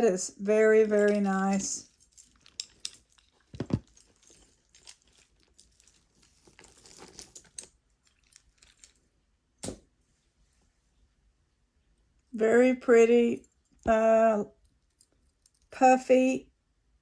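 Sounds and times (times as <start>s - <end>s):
rustling: 0.6s - 11.1s
jewelry clicking: 0.8s - 9.0s.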